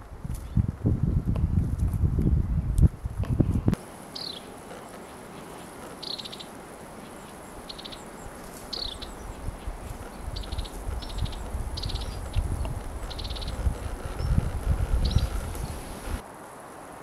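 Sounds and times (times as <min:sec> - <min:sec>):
small birds trilling: 0:03.8 - 0:16.2
down-slurred bird notes: 0:05.2 - 0:16.2
low rumbling noise: 0:09.0 - 0:16.2.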